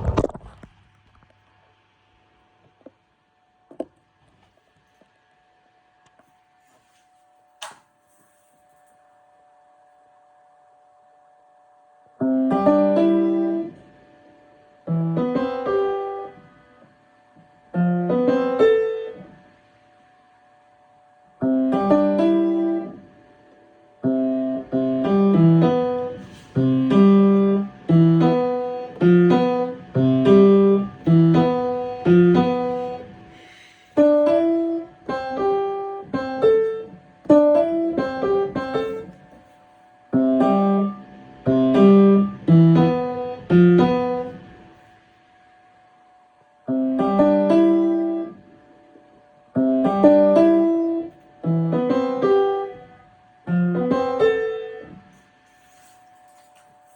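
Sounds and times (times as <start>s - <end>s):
piano playing: 24.0s - 33.3s, 40.2s - 44.6s.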